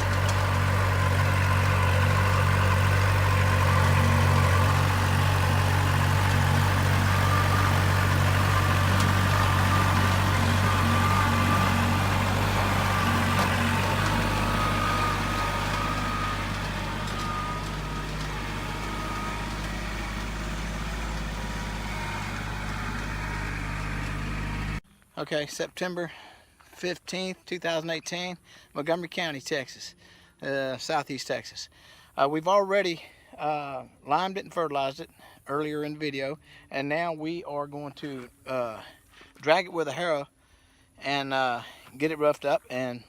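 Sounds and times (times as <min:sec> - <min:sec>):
vehicle engine running: 0:00.0 - 0:24.8.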